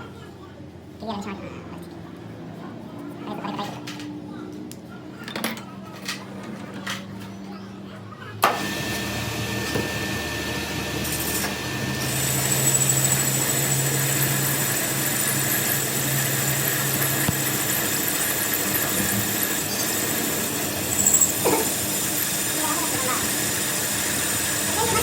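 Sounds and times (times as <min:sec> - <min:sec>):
power tool running with whine: 0:08.4 - 0:25.0.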